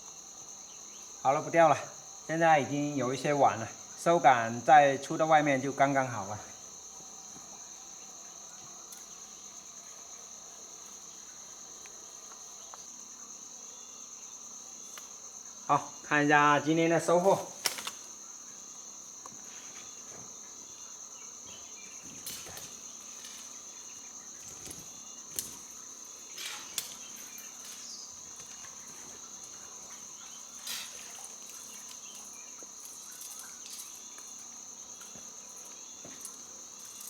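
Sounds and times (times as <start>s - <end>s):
insects chirring: 0.0s - 37.0s
knocks and rustles: 21.5s - 34.4s.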